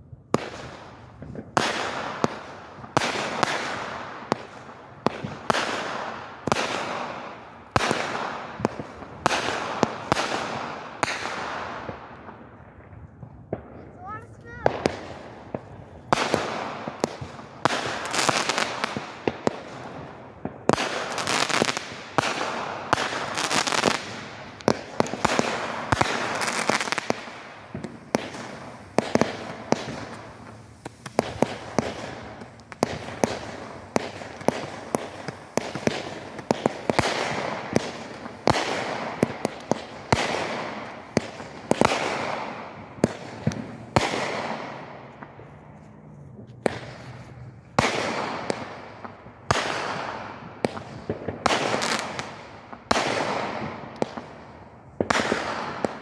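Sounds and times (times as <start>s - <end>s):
firework hissing and crackling: 0.4s - 12.4s, 13.9s - 45.9s, 46.5s - 56.0s
firework reports: 13.1s - 56.0s.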